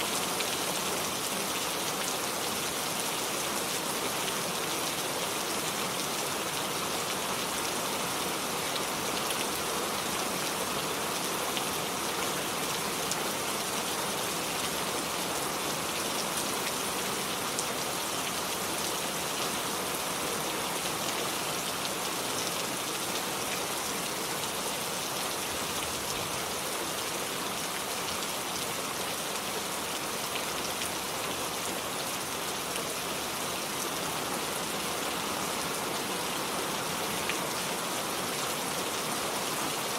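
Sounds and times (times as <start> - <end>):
steady rainfall pattering: 0.0 - 39.9.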